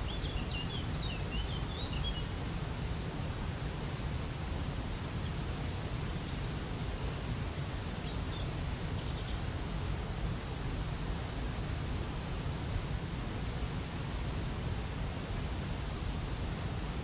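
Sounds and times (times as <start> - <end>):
faint bird chirps: 0.0 - 2.3.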